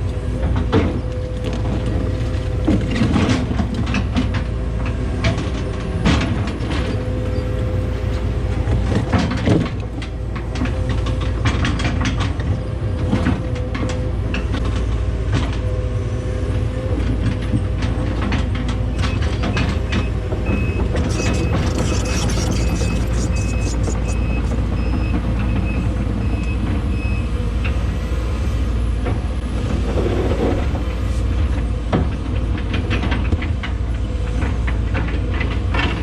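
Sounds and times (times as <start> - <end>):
hydraulic whine: 19.0 - 25.1
repeating beep: 21.1 - 24.6.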